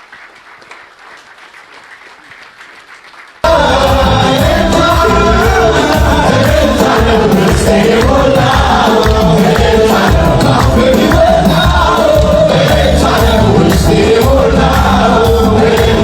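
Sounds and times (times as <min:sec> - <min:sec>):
audience applauding: 0:00.0 - 0:16.0
worship song with heavy bass: 0:03.4 - 0:16.0.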